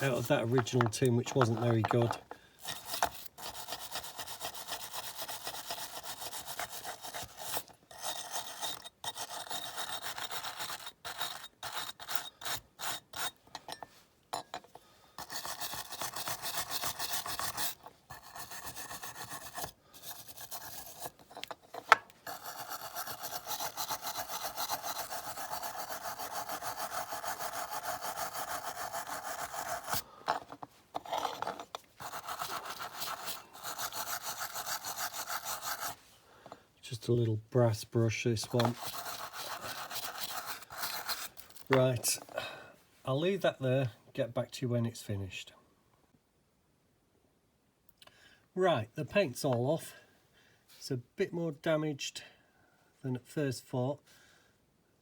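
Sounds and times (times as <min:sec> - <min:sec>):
wire brush scrubbing metal: 0:22.3 - 0:30.0, 0:32.0 - 0:36.0, 0:38.4 - 0:41.8.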